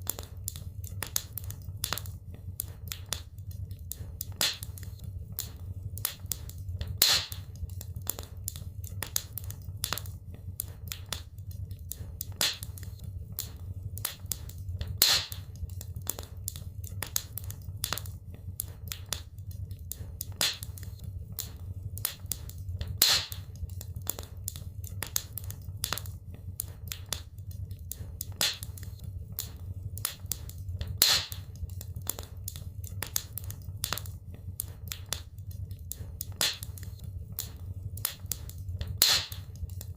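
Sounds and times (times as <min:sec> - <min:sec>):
low fire rumble: 0:00.0 - 0:39.9
wood fire crackling: 0:00.0 - 0:39.9
sharp fire pop: 0:07.0 - 0:07.4, 0:15.0 - 0:15.4, 0:23.0 - 0:23.4, 0:31.0 - 0:31.4, 0:39.0 - 0:39.4.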